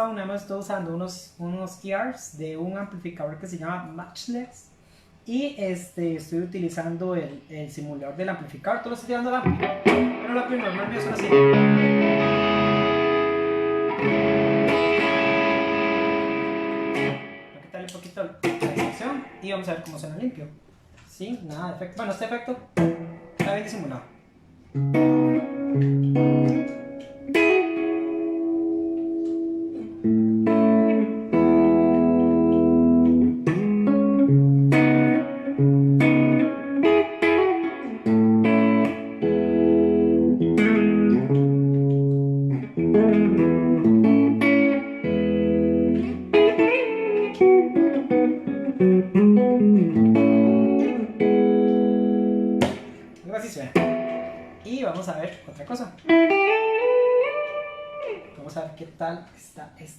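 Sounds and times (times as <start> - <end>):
clean electric guitar chords: 9.4 - 17.7, 24.7 - 53.2, 53.8 - 54.7, 56.0 - 58.4.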